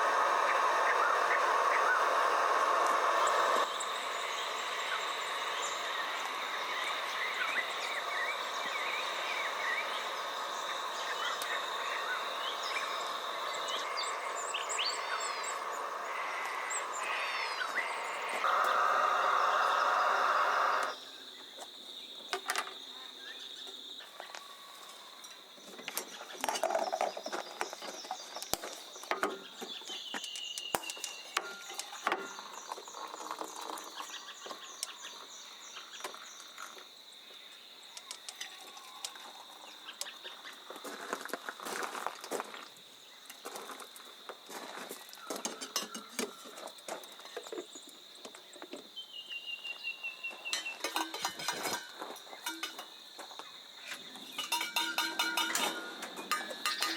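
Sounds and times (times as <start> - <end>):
bird chirps: 0.3 - 22.2, 23.2 - 36.7, 47.2 - 51.2
camp cooking gear clinking: 26.0 - 34.0, 45.4 - 46.4, 50.4 - 53.2, 53.8 - 56.9.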